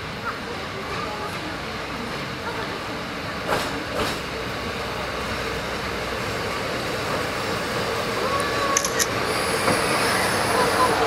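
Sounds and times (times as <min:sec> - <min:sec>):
diesel railcar engine and wheels: 0:00.0 - 0:11.0.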